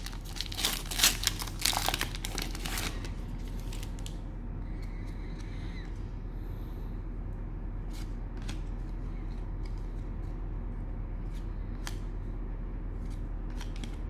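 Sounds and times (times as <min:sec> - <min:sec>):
cards and plastic packaging clicking: 0:00.0 - 0:04.2, 0:11.3 - 0:12.1, 0:13.0 - 0:14.0
steady low hum: 0:00.0 - 0:14.0.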